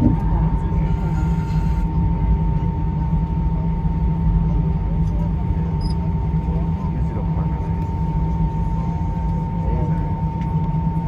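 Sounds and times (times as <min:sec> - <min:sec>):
thin high hum: 0:00.0 - 0:02.7
aircraft cabin engine rumble: 0:00.0 - 0:11.0.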